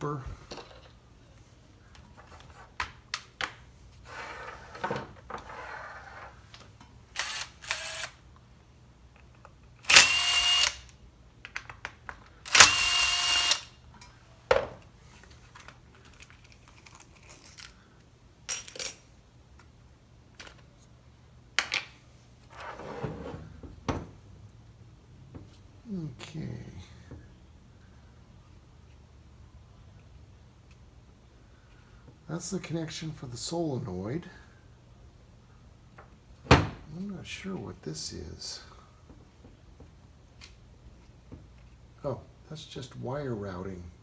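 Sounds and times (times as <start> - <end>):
small parts clicking and rattling: 15.5 - 19.0.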